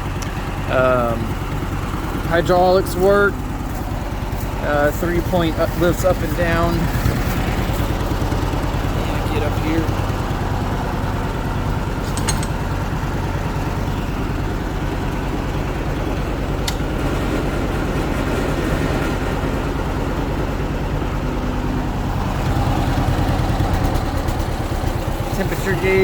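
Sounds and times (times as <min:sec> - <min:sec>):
tractor engine idling: 0:00.0 - 0:26.0
sharp click: 0:16.6 - 0:16.8.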